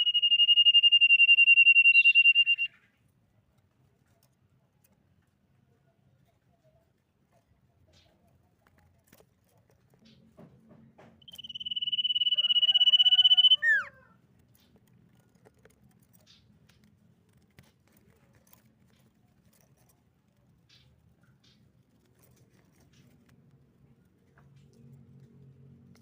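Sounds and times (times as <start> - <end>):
bird whistling: 0.0 - 2.8, 11.2 - 13.9.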